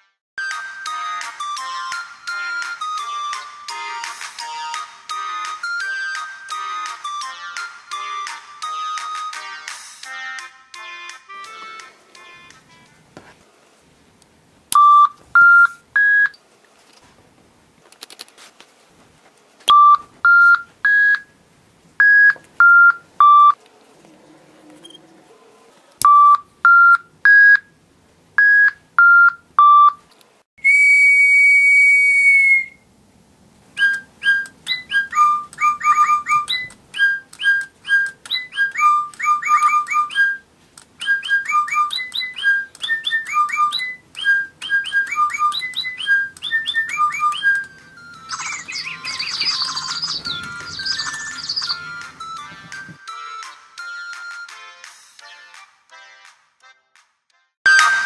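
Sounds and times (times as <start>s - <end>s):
electronic toy bird tones: 14.7s - 16.4s, 22.0s - 23.6s, 26.0s - 27.6s, 28.4s - 30.0s, 33.8s - 40.4s, 41.0s - 53.0s
whistle blast: 30.6s - 32.8s
electronic chirping birdsong: 33.8s - 53.8s.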